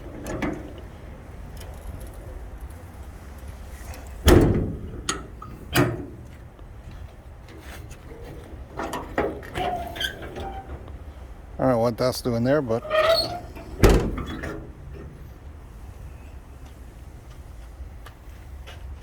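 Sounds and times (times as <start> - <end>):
truck door shutting with thump: 4.2 - 6.2, 13.0 - 14.7.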